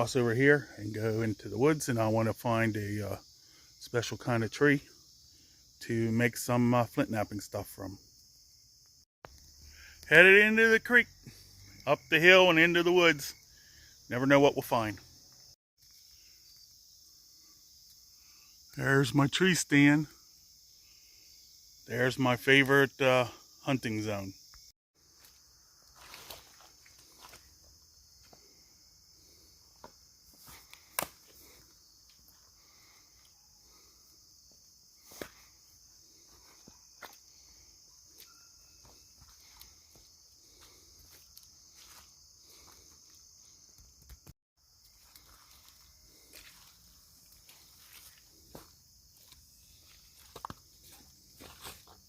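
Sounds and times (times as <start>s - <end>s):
crickets chirping: 0.0s - 52.0s
footsteps on forest floor: 25.1s - 33.0s, 33.7s - 52.0s
twigs cracking and snapping: 30.6s - 31.4s.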